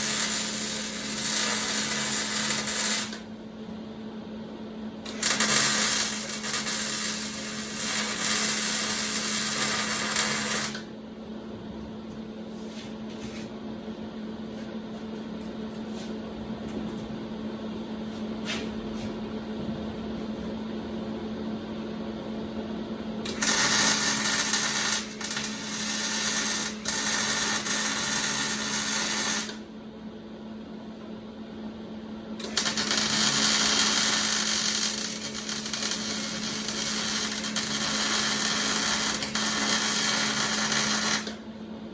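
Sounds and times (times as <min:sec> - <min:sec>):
welding arc crackle: 0:00.0 - 0:03.2, 0:05.1 - 0:10.8, 0:23.3 - 0:29.6, 0:32.4 - 0:41.4.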